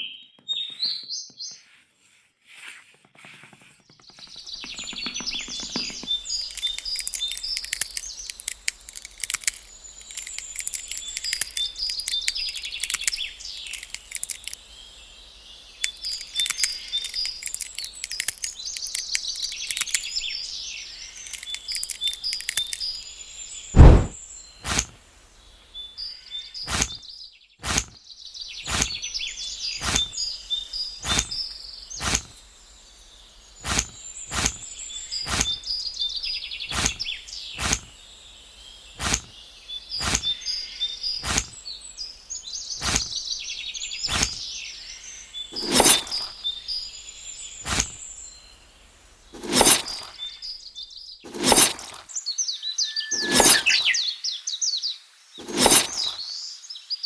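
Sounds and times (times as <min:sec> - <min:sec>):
songbirds chirping: 0:00.0 - 0:57.0
sharp knocks: 0:03.8 - 0:06.2, 0:23.8 - 0:24.2.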